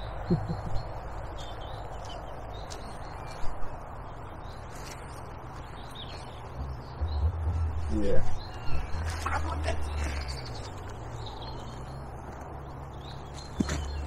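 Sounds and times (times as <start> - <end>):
small birds chirping: 0.0 - 14.0
low outdoor rumble: 6.2 - 13.0.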